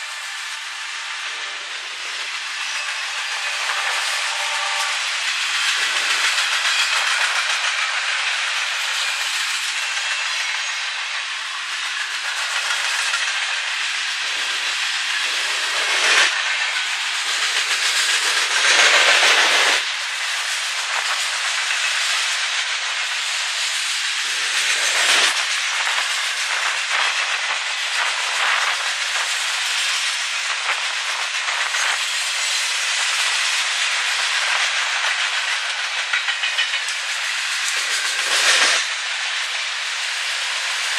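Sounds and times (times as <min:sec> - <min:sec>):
train wheels rolling on rail: 0:00.0 - 0:40.9.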